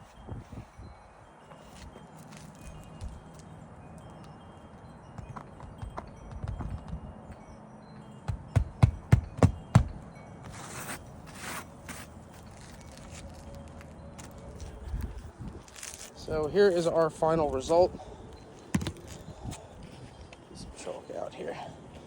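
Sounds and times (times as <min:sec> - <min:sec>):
hammer striking roofing nails: 0:08.2 - 0:10.0.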